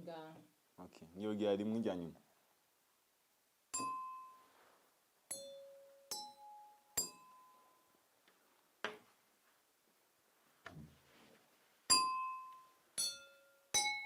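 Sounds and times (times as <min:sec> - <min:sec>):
glasses ringing when struck: 0:03.7 - 0:04.5, 0:05.3 - 0:07.9, 0:11.9 - 0:14.0.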